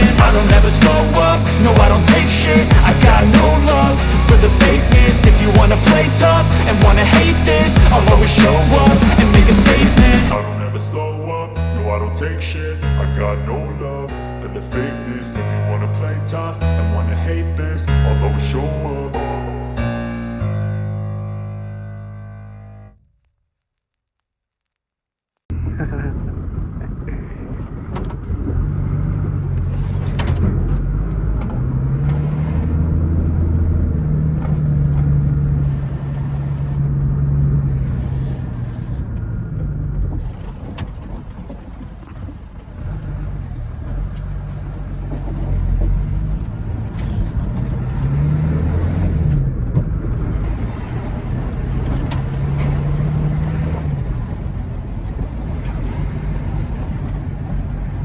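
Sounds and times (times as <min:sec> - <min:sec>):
truck engine revving: 0:00.0 - 0:12.1.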